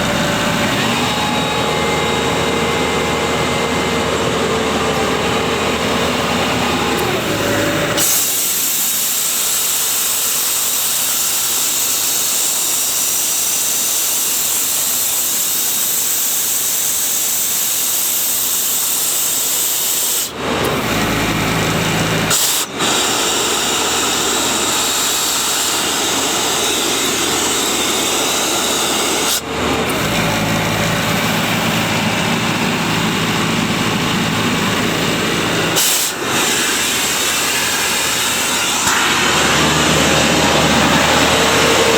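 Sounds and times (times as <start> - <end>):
compressor engine low hum: 0.0 - 9.4, 20.3 - 41.9
compressed air hissing: 5.8 - 20.4, 22.2 - 30.1, 31.0 - 41.9.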